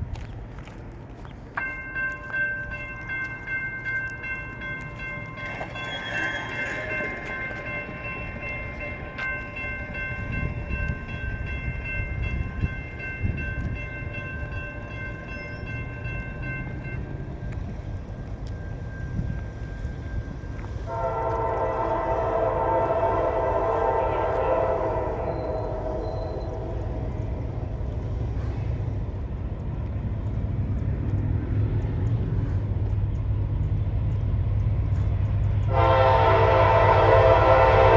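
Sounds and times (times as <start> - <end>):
low rumble of train: 0.0 - 37.9
locomotive air horn: 20.8 - 27.0, 35.7 - 37.9.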